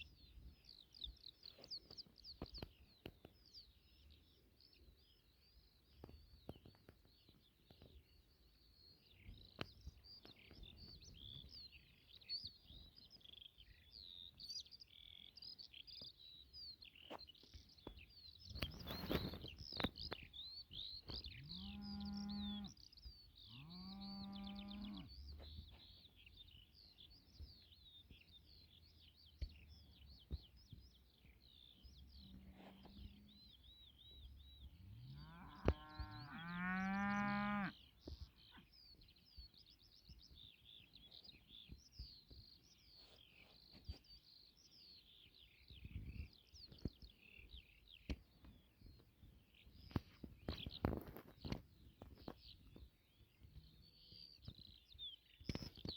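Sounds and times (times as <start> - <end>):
small birds chirping: 0.0 - 55.9
cow mooing: 35.0 - 37.8.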